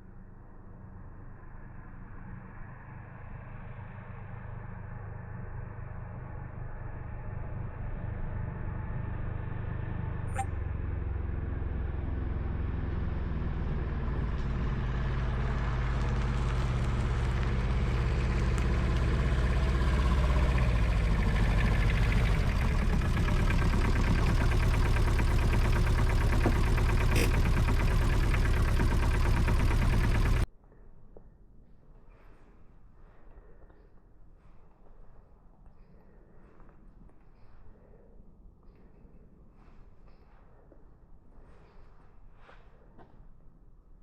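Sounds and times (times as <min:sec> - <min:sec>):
diesel engine droning: 0:01.1 - 0:30.5.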